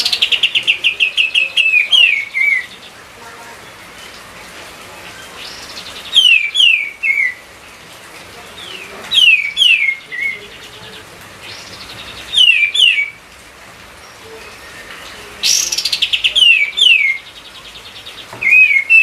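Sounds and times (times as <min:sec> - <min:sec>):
songbird whistled phrases: 0:00.0 - 0:02.8, 0:05.4 - 0:07.4, 0:08.6 - 0:10.6, 0:11.5 - 0:13.2, 0:14.1 - 0:17.4, 0:18.4 - 0:19.0.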